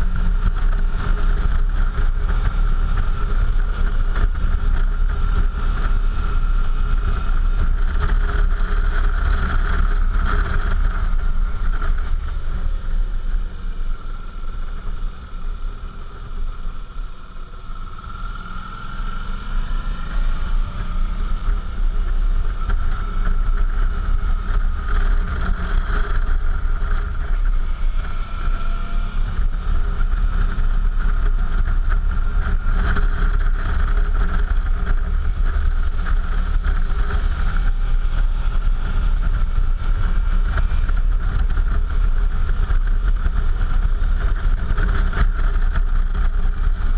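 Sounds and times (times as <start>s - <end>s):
wind on microphone: 0.0s - 17.2s
motorcycle engine running: 0.0s - 46.9s.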